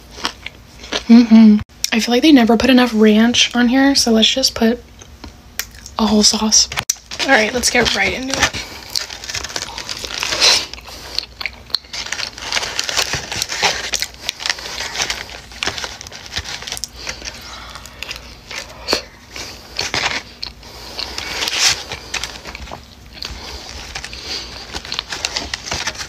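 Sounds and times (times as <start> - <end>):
person chewing food: 0.0 - 1.3, 8.5 - 26.0
paper liner rustling: 7.0 - 11.0, 11.9 - 18.7, 19.3 - 26.0.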